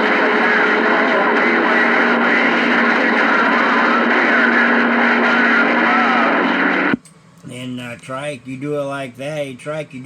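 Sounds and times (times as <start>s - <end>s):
garbled radio voices: 0.0s - 7.0s
radio static hiss: 0.0s - 7.0s.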